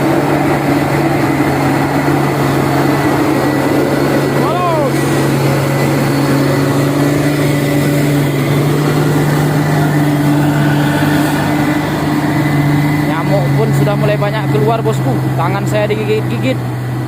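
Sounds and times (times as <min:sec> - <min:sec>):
diesel truck engine droning: 0:00.0 - 0:17.0.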